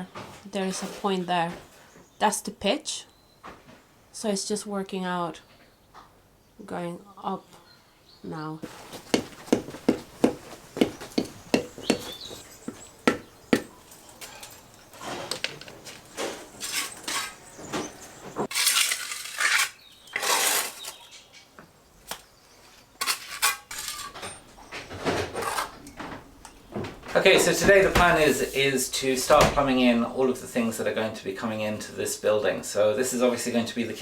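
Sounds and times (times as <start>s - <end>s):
trowel scraping: 8.6s - 21.0s, 23.0s - 24.4s, 25.3s - 25.8s
trowel clinking on blocks: 8.7s - 14.7s.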